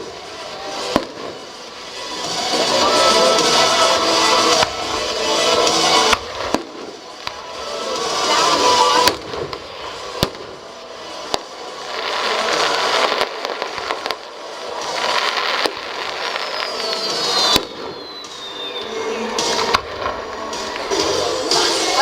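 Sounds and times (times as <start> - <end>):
crackling rumble of bursts: 0.0 - 22.0
firework bangs: 0.0 - 22.0
thin falling whistle: 16.3 - 19.7.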